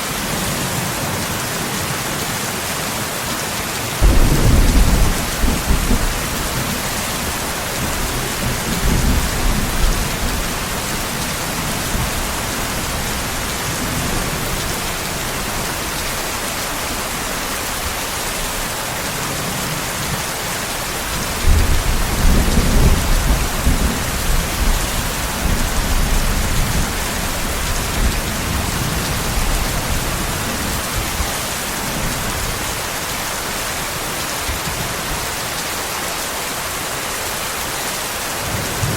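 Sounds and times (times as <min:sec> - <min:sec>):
steady rain: 0:00.0 - 0:38.9
distant thunder rumbling: 0:04.0 - 0:16.2.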